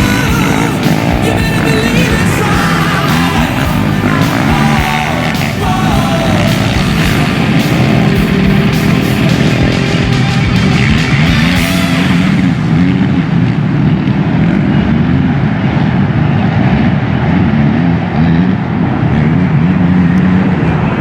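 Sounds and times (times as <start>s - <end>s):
rock music: 0.0s - 15.0s
motocross motorcycle engines: 0.0s - 21.0s.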